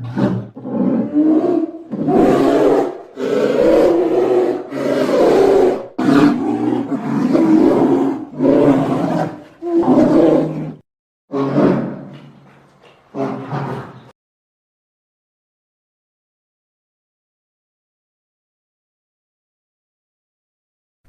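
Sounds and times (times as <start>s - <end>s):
bear growling and roaring: 0.0s - 14.2s.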